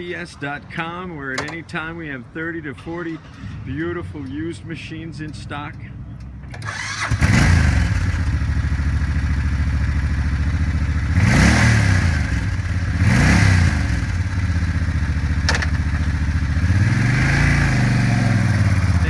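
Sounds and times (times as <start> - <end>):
sharp click: 1.3 - 1.7, 15.4 - 15.8
motorcycle engine idling: 6.0 - 19.0
engine revving: 6.4 - 19.0.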